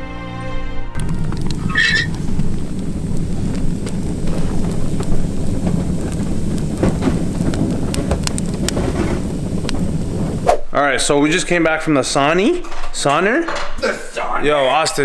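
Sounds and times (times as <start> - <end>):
light clicks and crunches: 1.0 - 10.4
wind buffeting microphone: 1.0 - 10.6.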